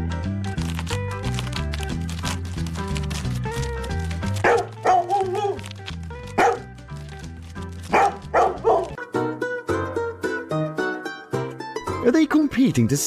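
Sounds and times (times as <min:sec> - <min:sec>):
background music: 0:00.0 - 0:13.0
dog barking: 0:04.4 - 0:05.6, 0:06.4 - 0:06.7, 0:07.9 - 0:09.0.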